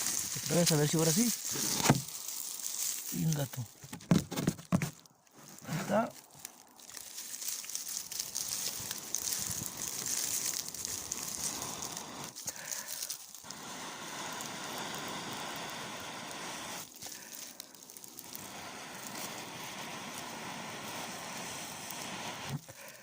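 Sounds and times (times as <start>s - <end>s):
straw rustling and crackling: 0.0s - 23.0s
breath blowing on tinder: 7.9s - 23.0s.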